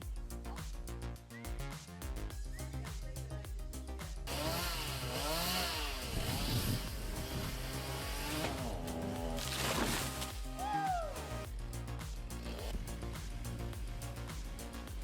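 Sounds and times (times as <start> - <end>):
chainsaw cutting: 4.3 - 10.4, 12.4 - 12.9.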